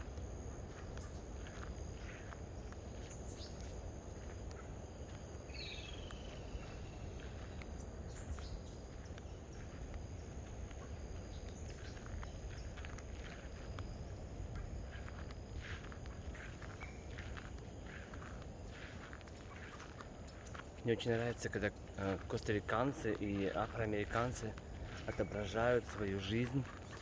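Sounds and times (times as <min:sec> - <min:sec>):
insects buzzing: 0:00.0 - 0:27.0
bird chirps: 0:05.4 - 0:09.8, 0:14.9 - 0:27.0
bird calling: 0:05.5 - 0:09.3, 0:10.8 - 0:27.0.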